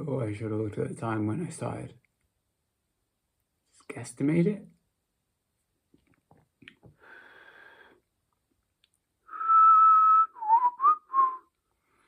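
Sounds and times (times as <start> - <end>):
person whistling a tune: 9.3 - 11.6.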